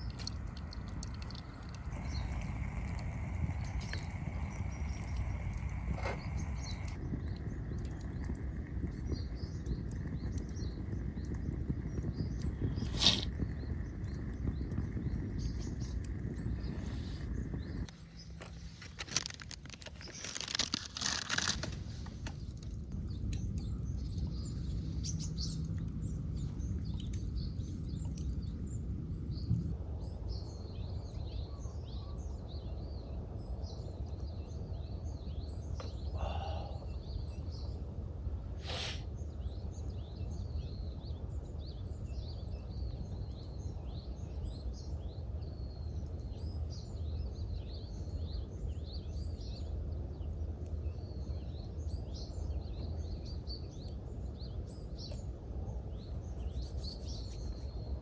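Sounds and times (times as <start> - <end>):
low outdoor rumble: 0.0 - 58.0
small birds chirping: 0.0 - 58.0
rustle: 18.0 - 22.8, 38.6 - 39.1.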